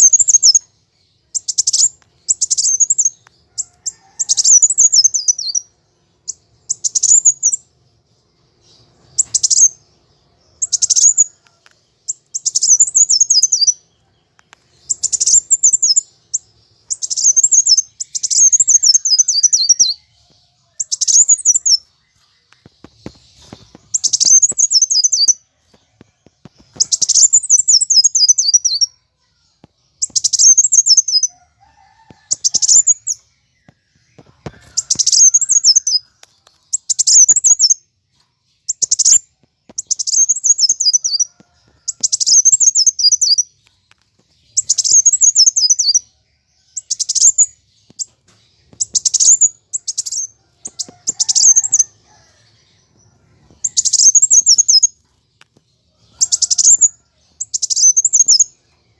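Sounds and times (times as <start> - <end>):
sunbird twittering song: 0.0 - 58.9.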